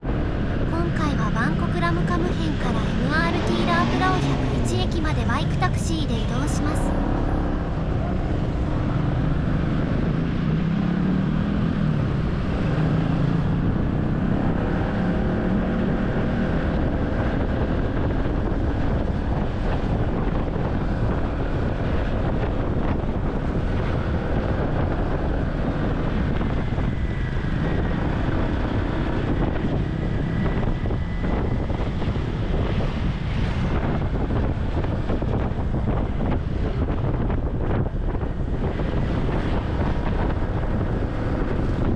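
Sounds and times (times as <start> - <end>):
road noise: 0.0 - 41.9
wind rushing over microphone: 0.0 - 41.9.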